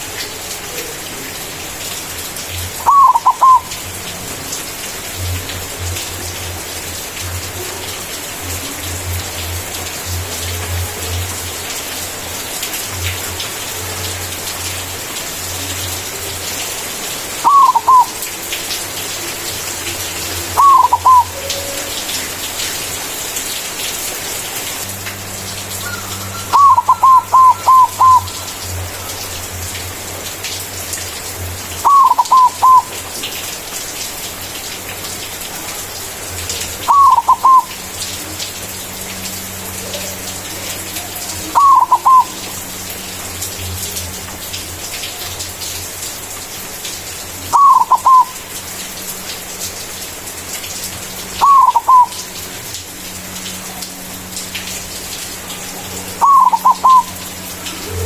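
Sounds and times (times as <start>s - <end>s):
dove cooing: 2.8s - 3.9s, 17.4s - 18.3s, 20.4s - 22.0s, 25.8s - 28.6s, 31.8s - 33.0s, 36.8s - 37.7s, 41.4s - 42.5s, 47.5s - 48.4s, 51.4s - 52.2s, 55.7s - 58.0s.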